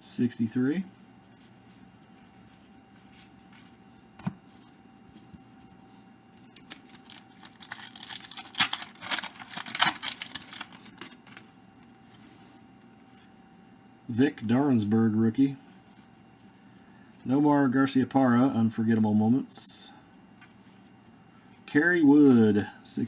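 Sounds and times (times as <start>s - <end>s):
card pack wrapper tearing and crinkling: 6.4s - 12.0s.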